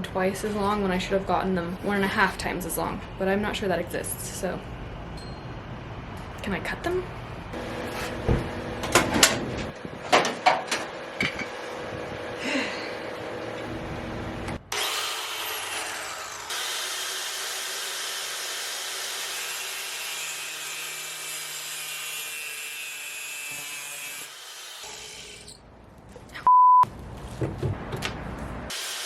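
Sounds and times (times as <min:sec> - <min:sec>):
metal screw being cut: 0:14.7 - 0:25.6
loud steady beep: 0:26.5 - 0:26.8.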